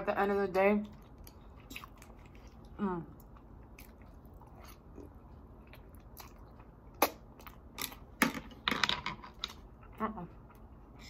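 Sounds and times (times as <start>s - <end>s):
chewing and biting food: 0.8s - 8.2s
sharp mouth clicks and crunches: 5.7s - 8.0s.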